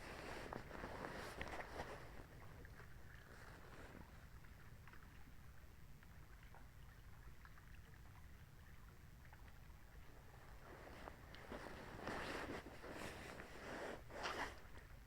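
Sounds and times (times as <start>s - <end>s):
short rustle: 0.0s - 2.3s, 10.5s - 14.9s
faint low rumble: 0.0s - 15.0s.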